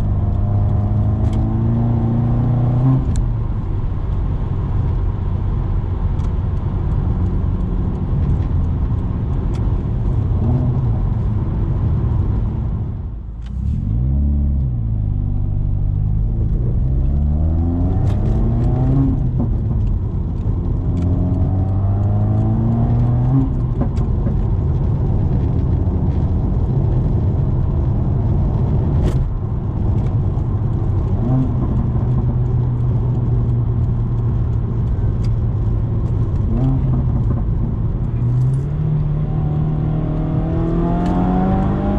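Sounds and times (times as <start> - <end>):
car engine accelerating: 0.0 - 41.9.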